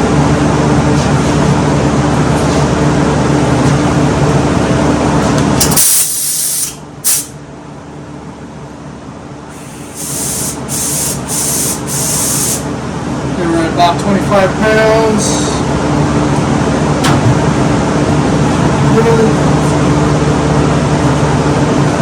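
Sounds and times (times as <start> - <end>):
loud machine hum: 0.0 - 22.0
spray gun hissing bursts: 5.7 - 7.3, 9.6 - 12.7.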